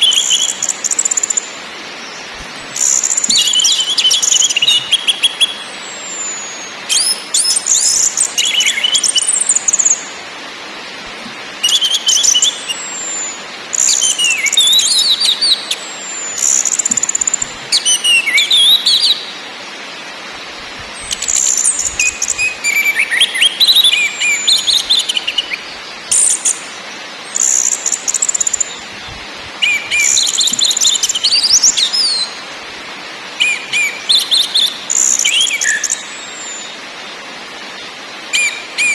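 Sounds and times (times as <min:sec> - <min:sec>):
thrush singing whistles and chatter: 0:00.0 - 0:10.2, 0:11.6 - 0:19.4, 0:21.0 - 0:28.9, 0:29.6 - 0:32.4, 0:33.4 - 0:36.8, 0:38.3 - 0:38.9.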